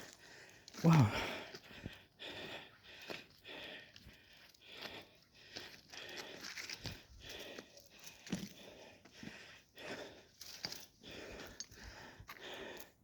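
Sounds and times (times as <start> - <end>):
hard breathing: 0.0 - 13.0
footsteps on rock and grit: 4.0 - 12.6.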